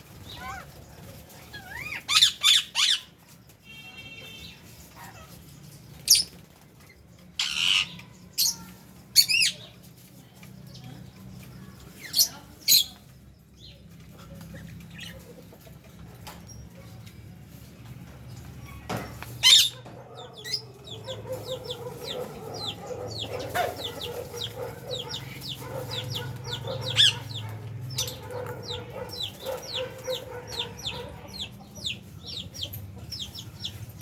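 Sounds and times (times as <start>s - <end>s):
quiet bird chatter: 0.0s - 34.0s
birds squawking shrilly: 1.5s - 3.2s, 7.4s - 8.6s, 19.4s - 31.5s.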